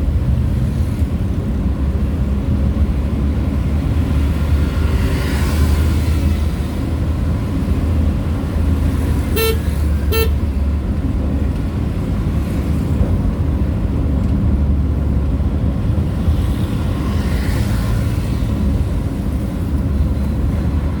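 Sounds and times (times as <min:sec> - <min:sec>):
vehicle rumbling on road: 0:00.0 - 0:21.0
vehicle horn beeping: 0:09.3 - 0:10.6.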